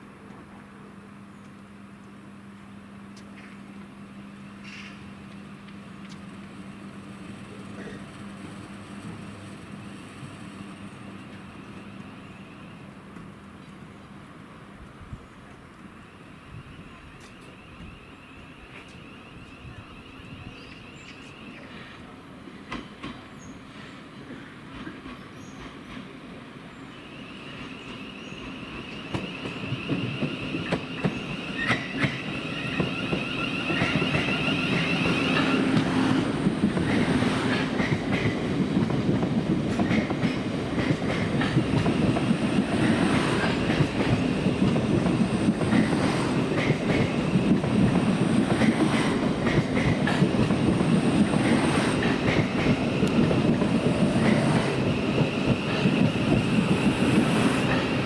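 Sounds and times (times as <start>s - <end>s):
train rumble: 0.0s - 58.0s
train wheels clicking over rails: 22.6s - 26.3s, 27.2s - 58.0s.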